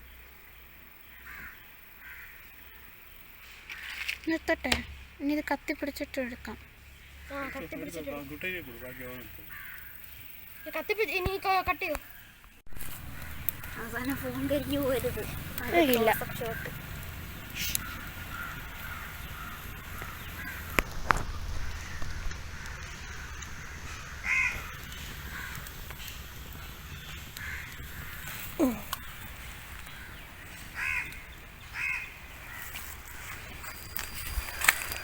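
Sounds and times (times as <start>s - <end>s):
birds calling: 0.0s - 35.0s
sharp clicks: 24.6s - 28.2s.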